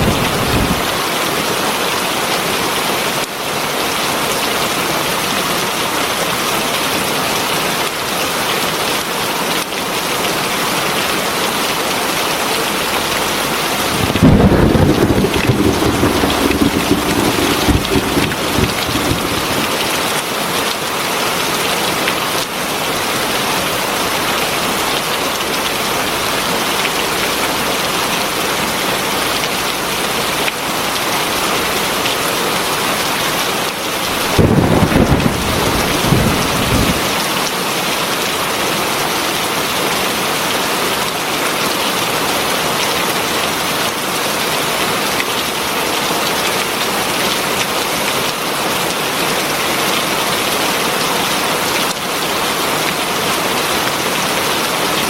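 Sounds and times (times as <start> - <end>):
heavy rain falling: 13.4 - 21.0, 34.0 - 37.5
thunder rumble: 13.8 - 20.1.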